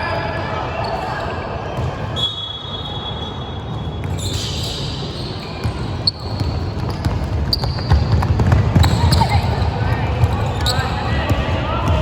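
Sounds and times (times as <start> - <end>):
shoes squeaking on floor: 2.2 - 11.3
basketball bouncing: 5.6 - 12.0.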